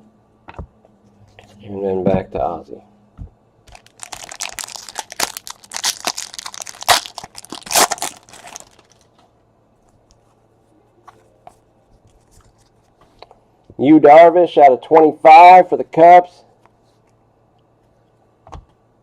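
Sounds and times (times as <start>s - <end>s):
wrapper crinkling and tearing: 3.7s - 9.1s.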